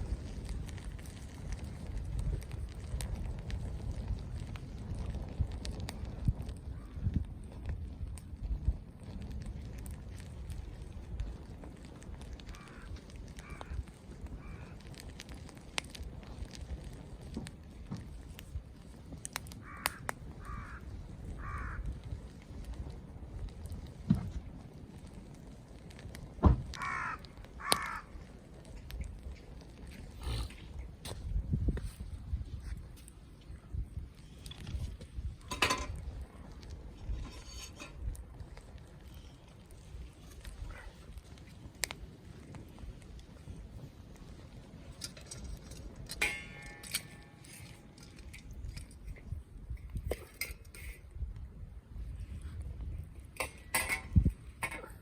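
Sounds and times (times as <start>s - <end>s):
crow cawing: 12.5s - 13.8s, 14.4s - 14.8s, 19.6s - 20.8s, 21.4s - 21.9s, 26.8s - 28.1s.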